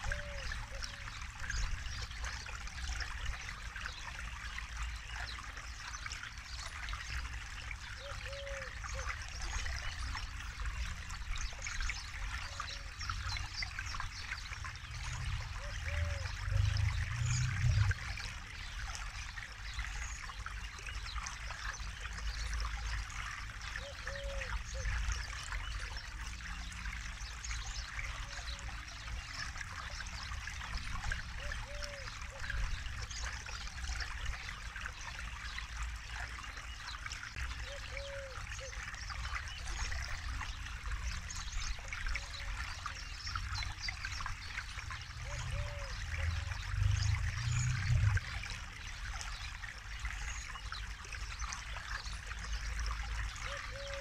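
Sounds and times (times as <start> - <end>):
river flowing and trickling: 0.0 - 54.0
low rumble: 46.4 - 48.4.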